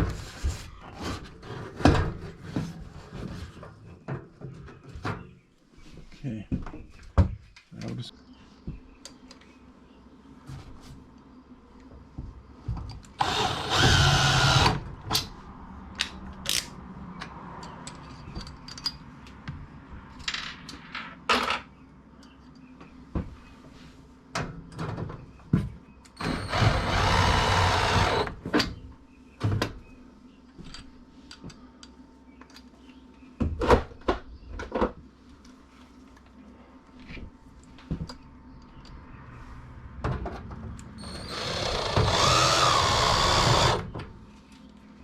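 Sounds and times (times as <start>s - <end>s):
cordless drill driving screws: 13.2s - 14.8s, 26.2s - 28.4s, 41.0s - 43.8s.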